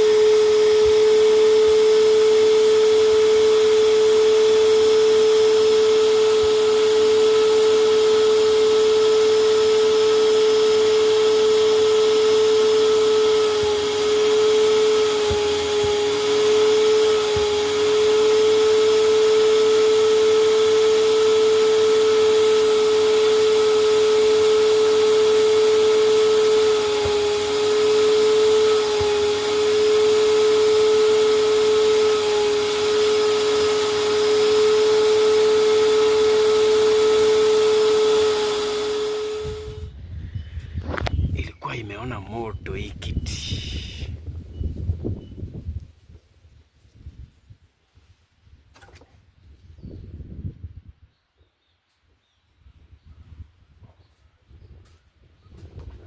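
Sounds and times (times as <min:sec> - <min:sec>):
vacuum cleaner running: 0:00.0 - 0:44.2.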